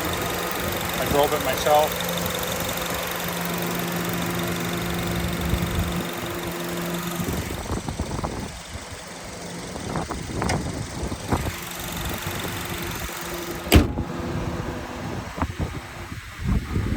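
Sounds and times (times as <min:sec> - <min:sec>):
car engine idling: 0:00.0 - 0:16.9
sharp thump: 0:13.6 - 0:14.2.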